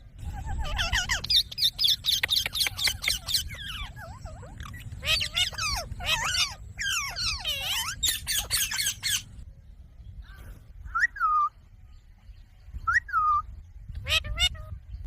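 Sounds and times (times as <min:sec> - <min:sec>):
parrot squawking calls: 0:00.2 - 0:09.4, 0:14.0 - 0:14.8.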